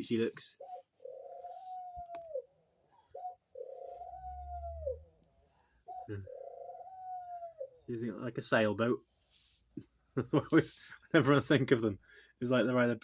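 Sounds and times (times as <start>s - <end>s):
dove cooing: 0.0s - 7.9s.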